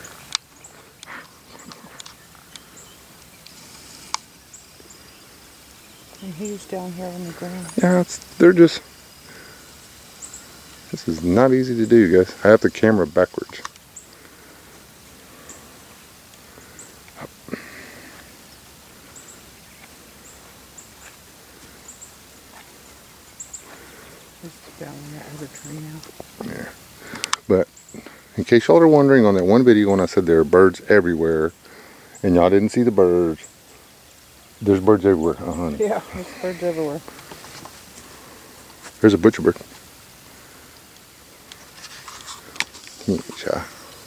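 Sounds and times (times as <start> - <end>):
faint outdoor hiss: 0.0 - 44.0
small birds chipping: 0.0 - 44.0
brief rustle: 41.5 - 44.0.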